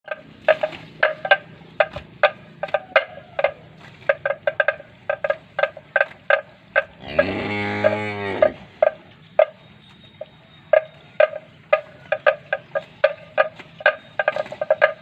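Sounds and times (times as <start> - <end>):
cow mooing: 7.0 - 8.7.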